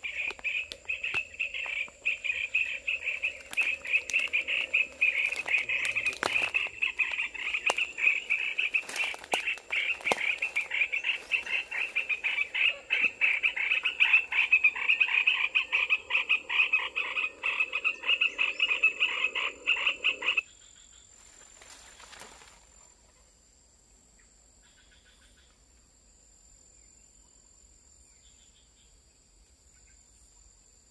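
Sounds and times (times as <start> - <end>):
rapid high-pitched animal calling: 0.0 - 20.4.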